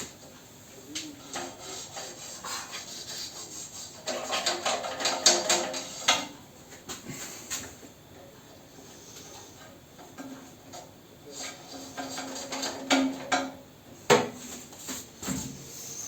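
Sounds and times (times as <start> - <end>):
hand scraping stove parts: 1.2 - 6.3, 9.4 - 13.6.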